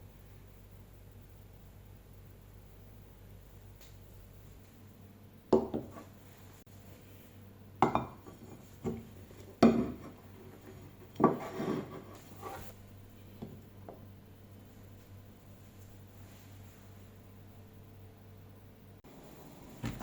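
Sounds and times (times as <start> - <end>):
utensil scraping cookware: 8.2 - 12.7.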